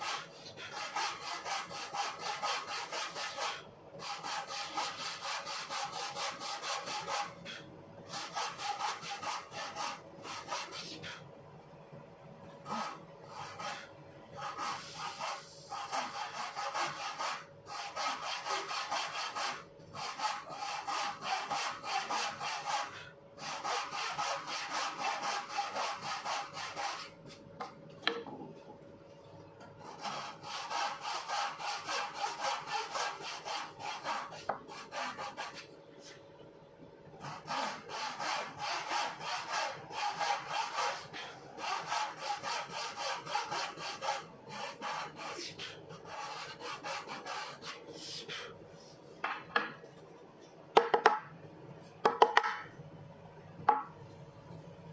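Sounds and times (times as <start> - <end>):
file scraping saw teeth: 29.9 - 35.6, 37.2 - 47.8.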